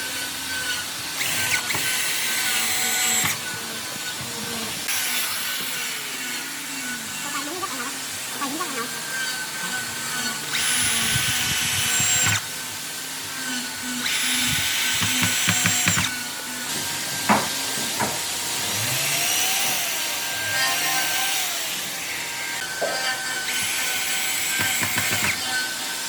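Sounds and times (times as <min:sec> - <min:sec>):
electric power tool on wood: 0:00.0 - 0:26.0
sharp knocks: 0:14.5 - 0:16.1, 0:24.5 - 0:25.4.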